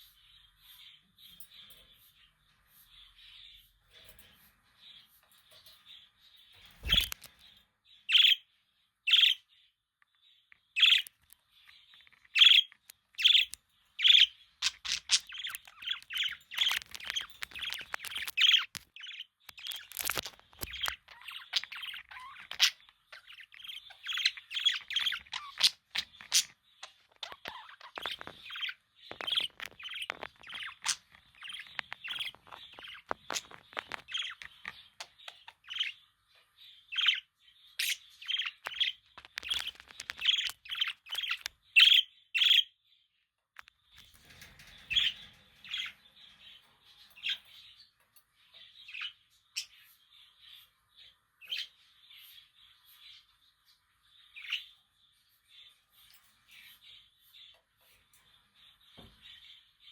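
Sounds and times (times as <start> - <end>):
budgerigars chirping: 6.8 - 7.2, 8.1 - 8.5, 9.1 - 9.5, 10.6 - 11.2, 11.8 - 36.0, 36.7 - 42.7, 54.3 - 54.8.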